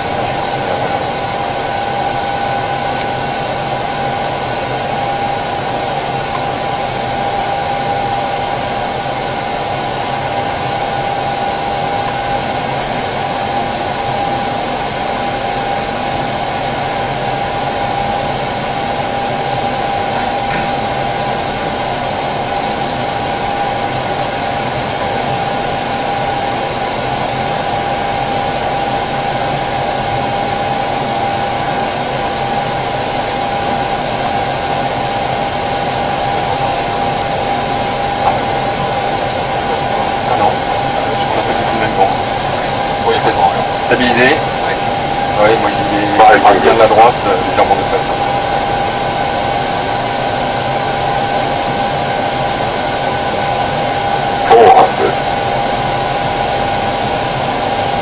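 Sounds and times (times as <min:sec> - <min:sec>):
steady high hum: 0:00.0 - 0:58.0
rush of air and ventilation: 0:35.0 - 0:57.1.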